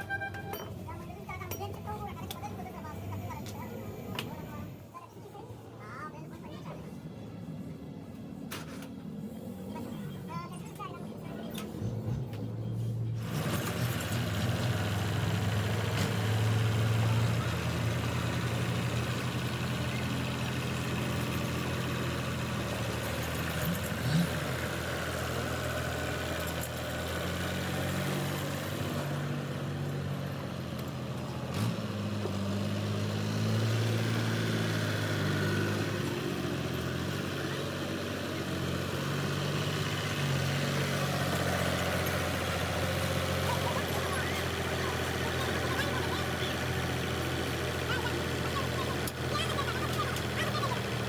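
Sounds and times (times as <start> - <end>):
tractor engine idling: 12.0 - 51.0.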